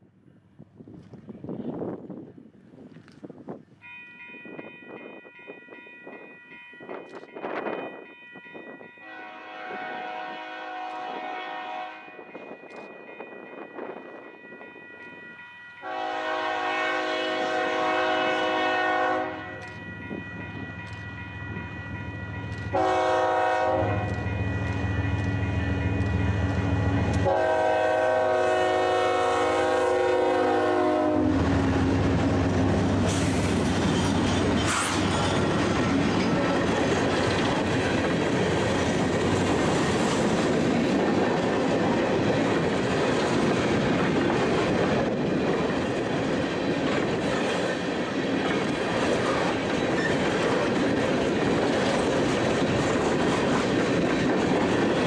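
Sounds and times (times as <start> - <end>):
diesel locomotive engines: 0.0 - 55.0
train air horn blasts: 9.0 - 12.2, 15.8 - 19.7, 22.6 - 25.9, 26.6 - 31.6.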